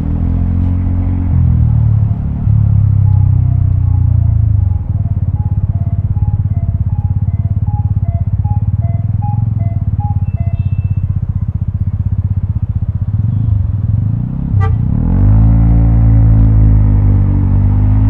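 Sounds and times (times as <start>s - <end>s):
scooter engine running: 0.0s - 14.8s
faint two-note beeping: 1.9s - 12.0s
short sharp beep: 2.8s - 11.3s.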